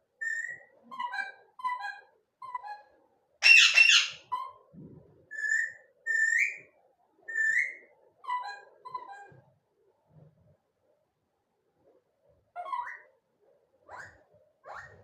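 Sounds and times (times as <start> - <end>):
parrot whistling: 3.4 - 4.2
parrot harsh squawk: 3.4 - 4.4.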